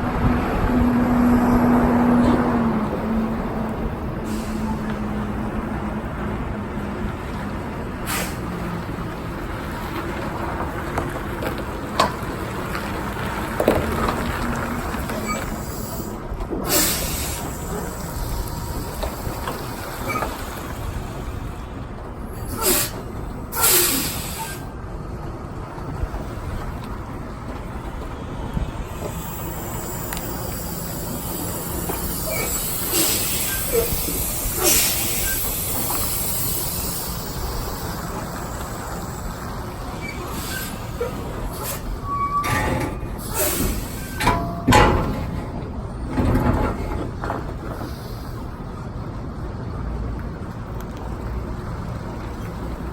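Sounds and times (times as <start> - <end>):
diesel truck engine running: 0.0 - 52.9
air brakes hissing: 4.2 - 5.0, 8.0 - 8.6, 15.2 - 21.0, 22.3 - 24.8, 28.6 - 45.4, 47.8 - 48.7
short clunks: 40.1 - 48.1.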